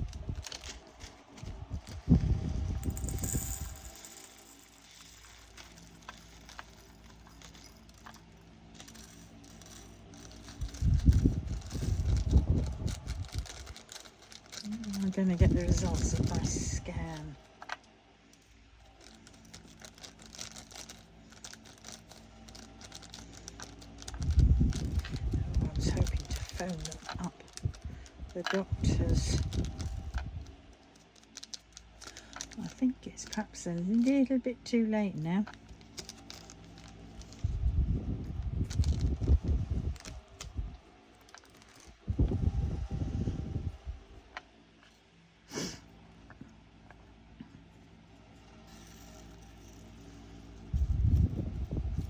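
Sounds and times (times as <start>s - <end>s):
packets crinkling: 0.0s - 17.7s, 18.4s - 34.2s, 35.4s - 37.6s, 38.6s - 42.0s
craft supplies clattering and rustling: 0.1s - 17.8s
small plastic pieces clicking: 2.8s - 34.2s.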